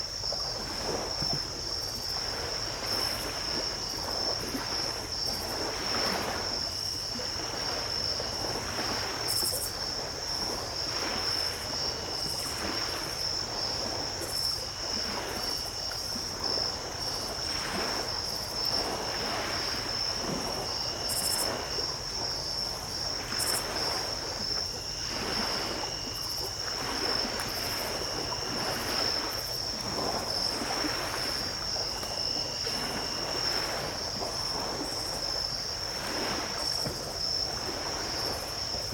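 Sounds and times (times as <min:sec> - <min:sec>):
lower insect trill: 0:00.0 - 0:38.9
small waves washing ashore: 0:00.0 - 0:38.9
high-pitched insect trill: 0:10.8 - 0:35.6.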